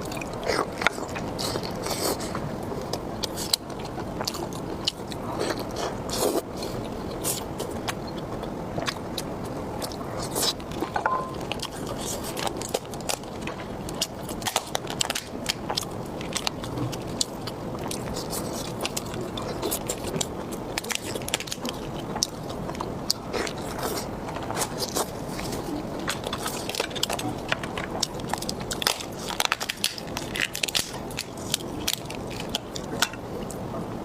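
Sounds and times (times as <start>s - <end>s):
person chewing food: 0.0s - 33.7s.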